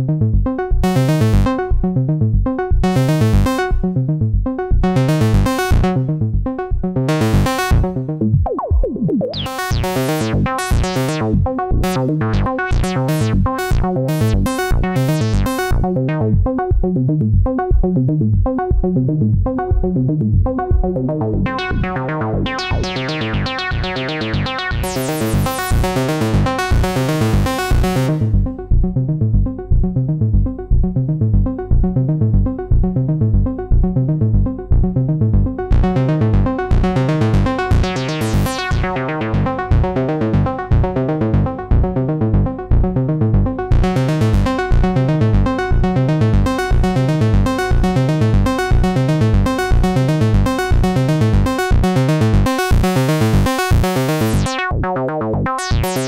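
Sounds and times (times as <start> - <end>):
synthesizer repeating short notes: 8.3 - 16.3, 53.5 - 56.0.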